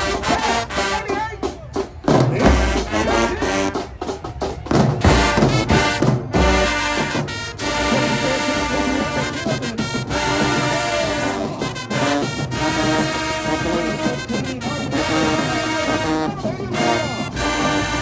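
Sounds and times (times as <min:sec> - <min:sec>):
marching band brass: 0:00.0 - 0:18.0
bass drum hits: 0:02.1 - 0:03.1, 0:04.8 - 0:07.1.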